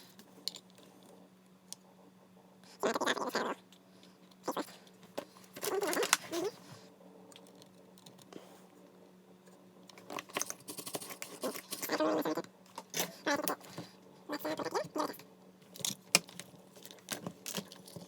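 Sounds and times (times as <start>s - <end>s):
small hard parts clicking and scraping: 9.9s - 12.0s.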